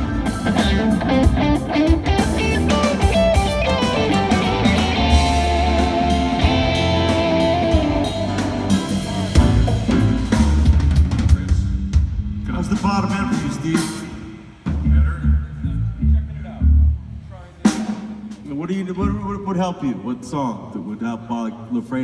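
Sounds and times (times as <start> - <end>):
electric guitar: 0.0 - 11.2
rock band playing live: 0.0 - 15.0.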